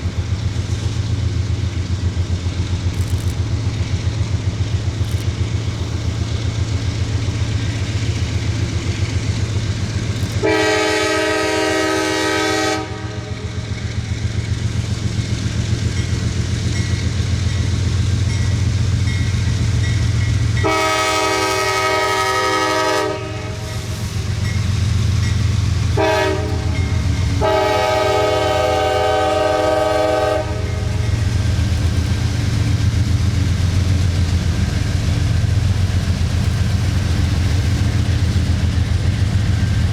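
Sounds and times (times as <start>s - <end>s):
train rumbling past: 0.0s - 39.9s
locomotive horn: 10.4s - 13.6s, 20.6s - 24.1s, 25.9s - 31.2s.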